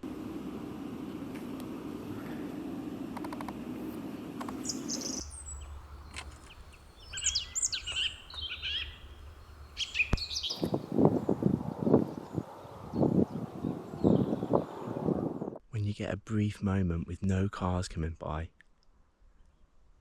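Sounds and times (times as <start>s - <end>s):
low traffic rumble: 0.0s - 15.6s
songbird chirping: 4.0s - 14.9s.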